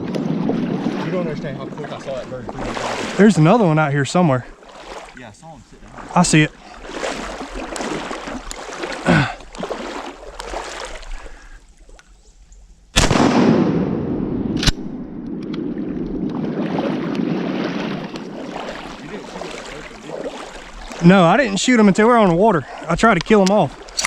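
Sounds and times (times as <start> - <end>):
shotgun blasts: 13.0 - 15.4.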